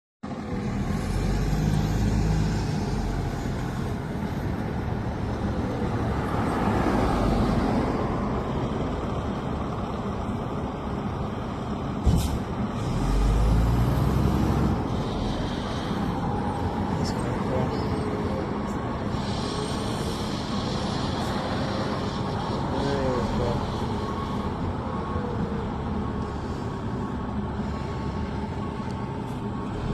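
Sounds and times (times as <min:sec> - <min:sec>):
diesel engine running: 0:00.2 - 0:29.9.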